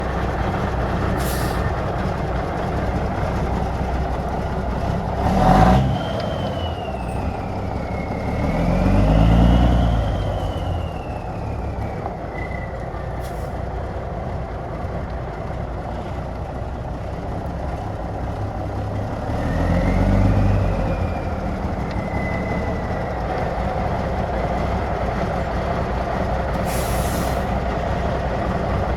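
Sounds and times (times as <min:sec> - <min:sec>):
diesel truck engine revving: 0:00.0 - 0:15.0, 0:15.6 - 0:28.9
short burst of air: 0:01.2 - 0:01.7, 0:26.6 - 0:27.5.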